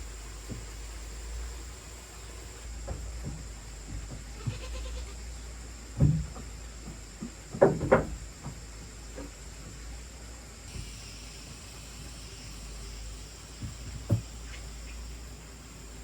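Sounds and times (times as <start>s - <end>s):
goat bleating: 4.4s - 5.2s.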